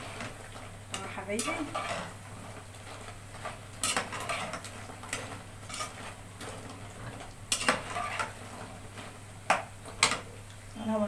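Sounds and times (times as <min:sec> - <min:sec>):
oil sizzling: 0:00.0 - 0:11.0
metal spoon scraping a pot: 0:01.4 - 0:02.2, 0:03.8 - 0:06.2, 0:07.5 - 0:08.4.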